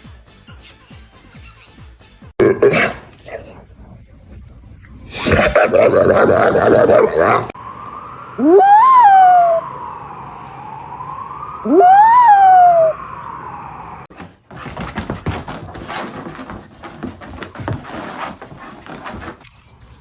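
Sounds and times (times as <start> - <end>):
dog howling: 5.2 - 7.6, 8.4 - 9.7, 11.6 - 13.0
wailing siren: 6.3 - 14.1
clatter of knocks and rustling: 14.1 - 19.5.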